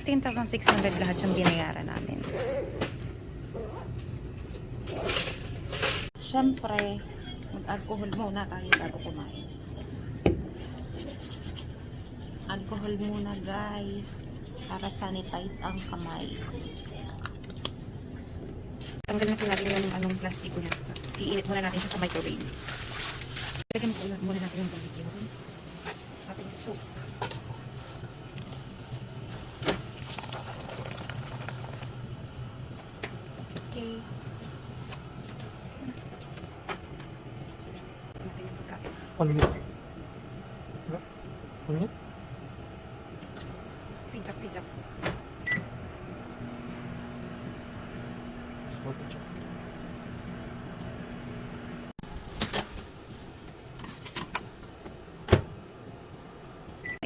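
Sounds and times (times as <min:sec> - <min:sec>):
low electrical hum: 0:00.0 - 0:57.0
microwave oven humming: 0:26.9 - 0:52.2.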